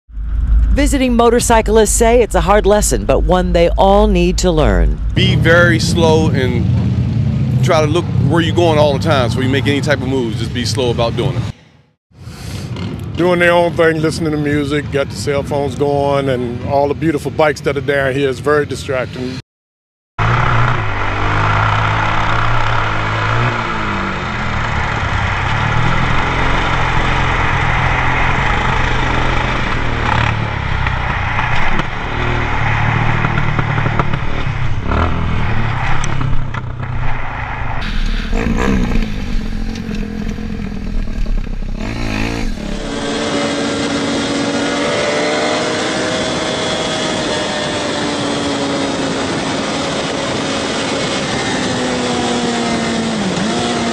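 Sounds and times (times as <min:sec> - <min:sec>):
motorcycle engines revving: 0:00.6 - 0:11.6, 0:20.2 - 0:53.9.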